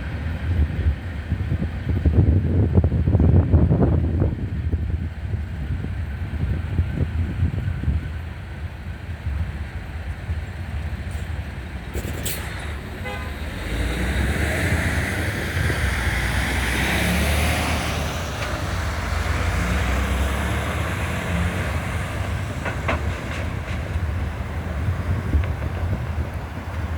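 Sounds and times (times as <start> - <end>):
train low rumble: 0.0 - 26.9
wind noise on microphone: 0.0 - 26.9
train horn: 13.0 - 14.0.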